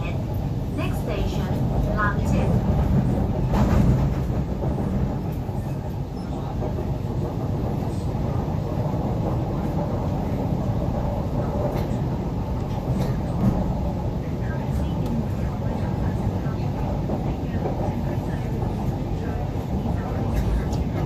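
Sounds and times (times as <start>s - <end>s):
electric metro train running: 0.0s - 21.0s.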